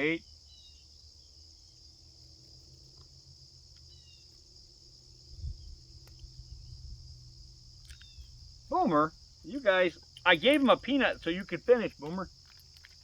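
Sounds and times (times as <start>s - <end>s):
faint bird chirps: 0.0s - 1.4s, 3.8s - 4.4s, 7.9s - 8.4s
high-pitched insect chorus: 0.0s - 13.0s.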